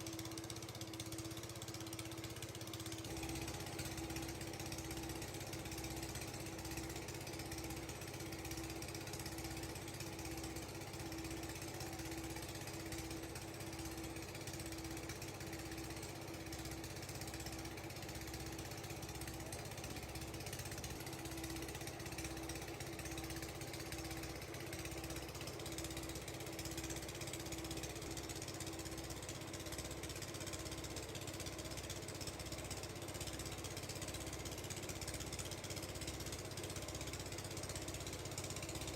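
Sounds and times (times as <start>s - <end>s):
low machine throb: 0.0s - 27.6s.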